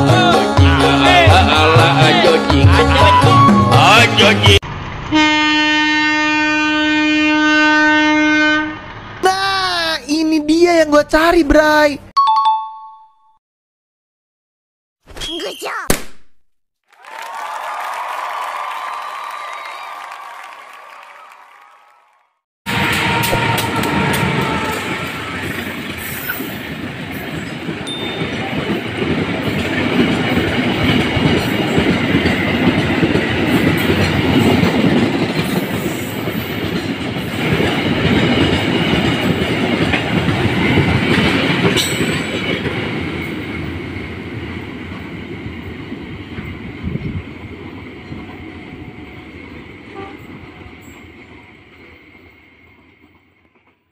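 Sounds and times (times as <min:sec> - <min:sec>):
diesel locomotive engine: 0:00.0 - 0:10.0, 0:22.7 - 0:53.9
train wheels clattering over rails: 0:22.7 - 0:48.5.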